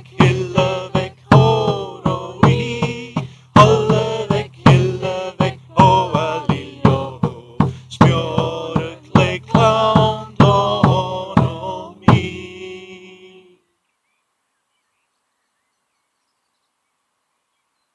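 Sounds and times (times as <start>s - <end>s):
steady drum beat: 0.0s - 13.0s
voices singing: 0.0s - 13.6s.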